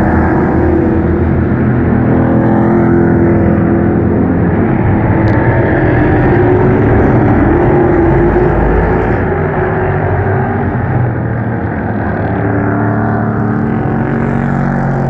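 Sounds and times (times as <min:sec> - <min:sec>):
racing truck engines: 0:00.0 - 0:15.0.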